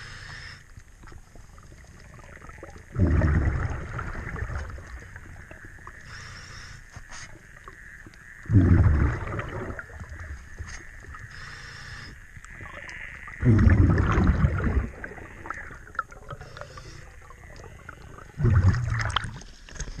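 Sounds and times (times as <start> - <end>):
faint crackle of clicks: 0.2 - 2.9, 4.5 - 8.5, 9.4 - 13.4, 15.0 - 20.0
underwater exhaled bubbles gushing: 1.1 - 6.1, 7.3 - 11.4, 12.3 - 19.5.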